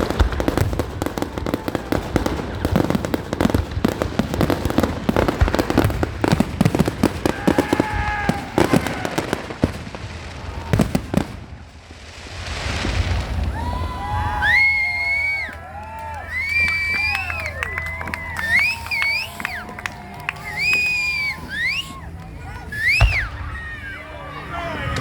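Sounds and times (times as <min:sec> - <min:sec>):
crowd cheering and whistling: 0:00.0 - 0:09.6, 0:13.3 - 0:25.0
fireworks bangs and crackles: 0:00.0 - 0:25.0.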